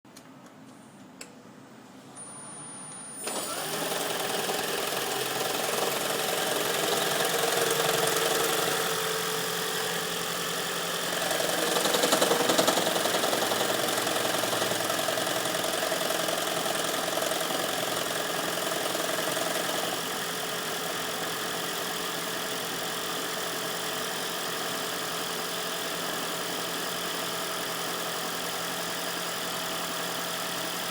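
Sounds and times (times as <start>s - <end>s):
car engine starting and knocking: 3.4s - 21.1s.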